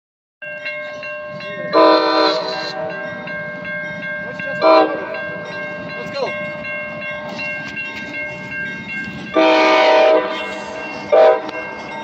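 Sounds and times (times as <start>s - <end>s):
bell ringing: 0.4s - 12.0s
locomotive air horn blasts: 1.8s - 2.9s, 4.6s - 5.1s, 9.3s - 11.6s.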